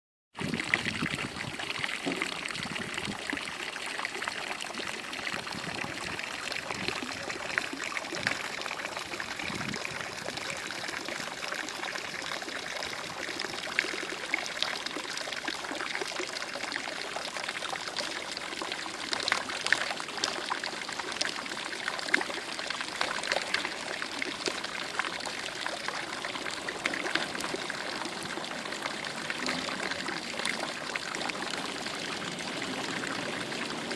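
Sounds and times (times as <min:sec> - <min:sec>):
water trickling and splashing: 0:00.4 - 0:33.9.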